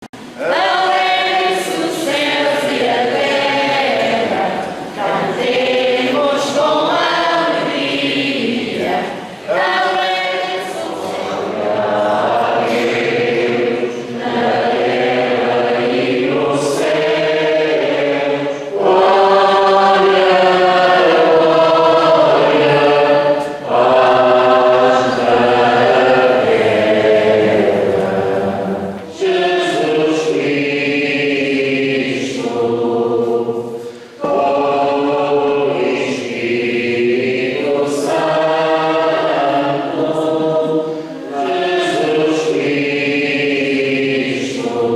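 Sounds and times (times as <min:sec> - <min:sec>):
choir singing a hymn: 0:00.1 - 0:44.9.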